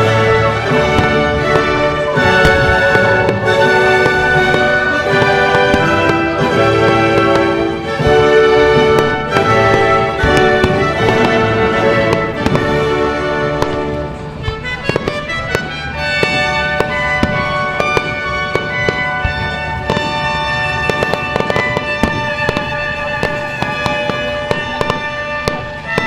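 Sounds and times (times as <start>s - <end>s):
fireworks bangs and crackles: 0.0s - 26.0s
music with sustained notes: 0.0s - 26.0s.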